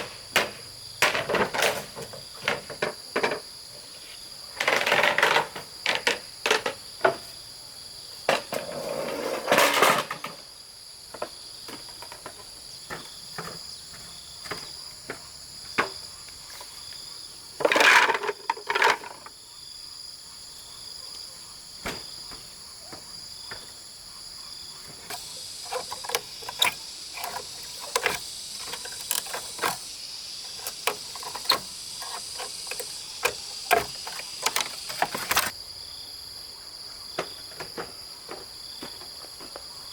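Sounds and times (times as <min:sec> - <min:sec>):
insects chirring: 0:00.0 - 0:39.9
knocks and clacks of handwork: 0:25.0 - 0:35.5.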